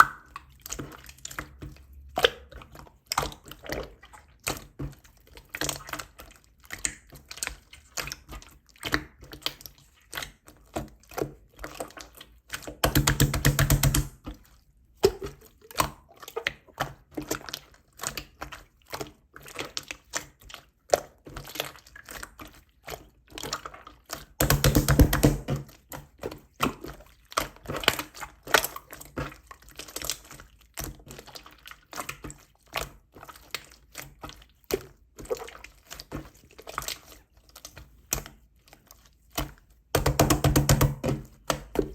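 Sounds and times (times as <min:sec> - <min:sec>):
slime squelching and popping: 0:00.0 - 0:41.9.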